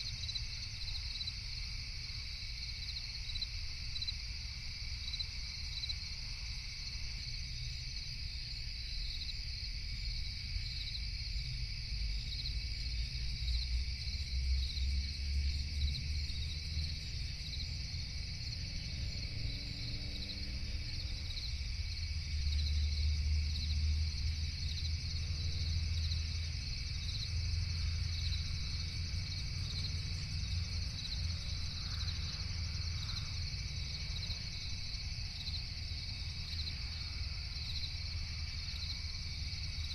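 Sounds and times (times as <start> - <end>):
crickets chirping: 0.0 - 39.9
low steady rumble: 11.2 - 39.9.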